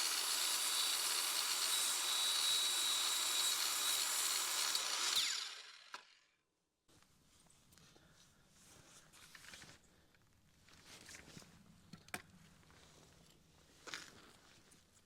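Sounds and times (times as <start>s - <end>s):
power saw cutting wood: 0.0s - 6.1s.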